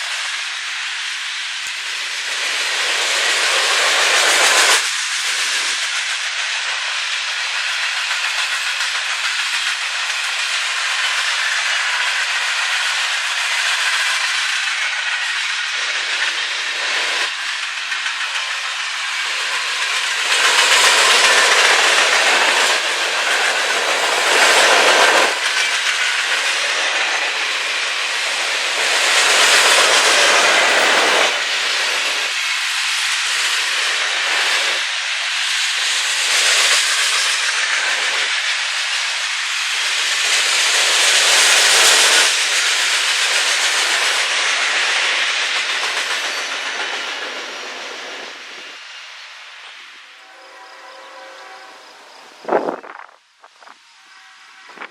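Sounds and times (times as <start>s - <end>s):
train clickety-clack: 0.0s - 53.8s
train wheels hissing on rail: 0.0s - 54.9s.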